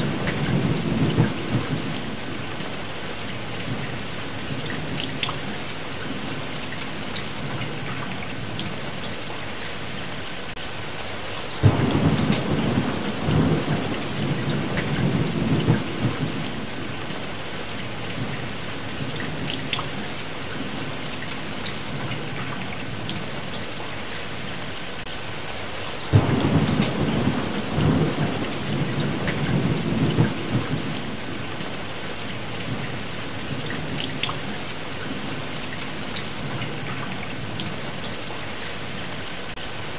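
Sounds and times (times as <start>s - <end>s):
steady rain: 0.0s - 39.9s
thunder rumbling: 11.6s - 19.5s, 26.1s - 34.2s.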